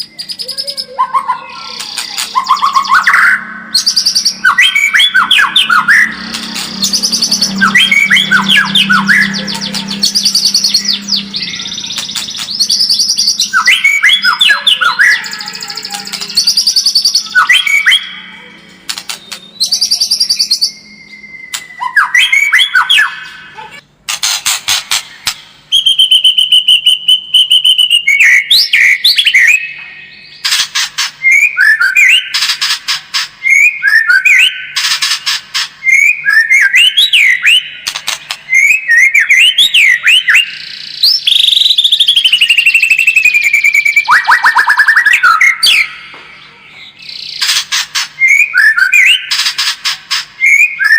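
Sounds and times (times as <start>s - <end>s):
bird singing whistled notes: 0.0s - 18.3s, 19.1s - 23.4s, 25.7s - 30.4s, 31.2s - 32.4s, 33.4s - 34.8s, 35.8s - 37.9s, 38.5s - 46.1s, 48.2s - 49.3s, 50.4s - 50.9s
bird harsh rapid rattles: 6.2s - 8.2s, 11.8s - 13.4s, 18.8s - 19.4s, 24.0s - 25.5s, 30.4s - 31.2s, 34.8s - 35.8s, 37.8s - 38.5s, 47.2s - 48.2s, 49.2s - 50.4s.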